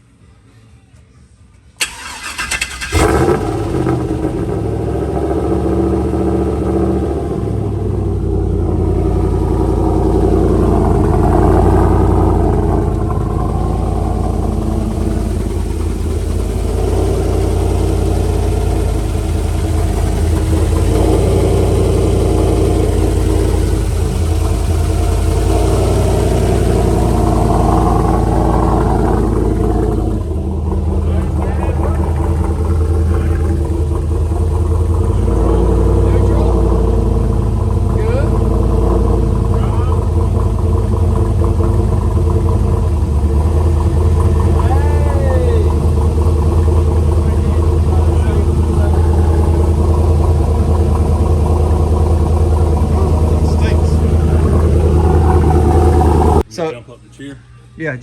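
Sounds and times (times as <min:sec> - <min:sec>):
engine running: 0:01.7 - 0:56.5
starter cranking engine: 0:01.8 - 0:07.6, 0:08.5 - 0:56.5.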